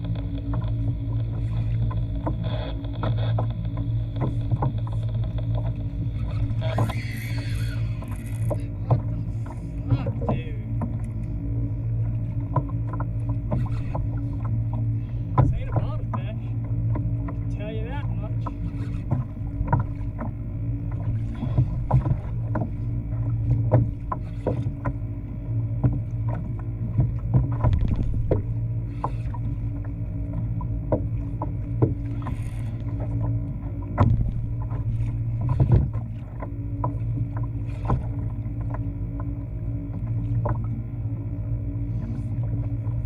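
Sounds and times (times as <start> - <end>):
low hum: 0.0 - 43.0
water knocking and splashing on hull: 0.0 - 43.0.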